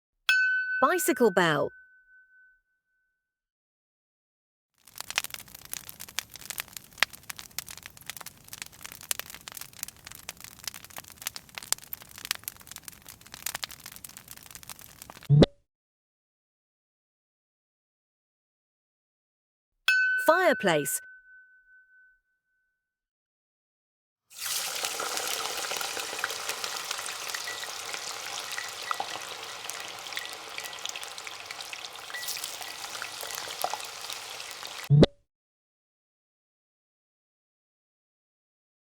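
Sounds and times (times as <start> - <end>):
wood fire crackling: 4.8 - 15.3, 24.3 - 34.9.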